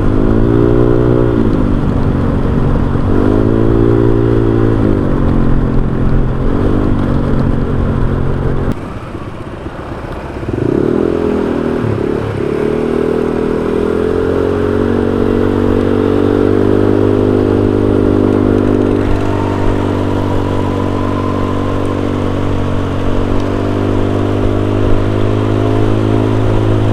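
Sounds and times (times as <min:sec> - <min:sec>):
scooter engine revving: 0:00.0 - 0:26.9.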